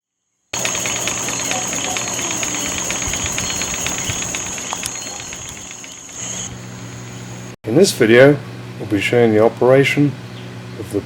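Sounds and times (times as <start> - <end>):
rapid mechanical ticking: 0.6 - 7.6
steam mill engine running: 0.6 - 7.6
high whine: 0.6 - 8.1.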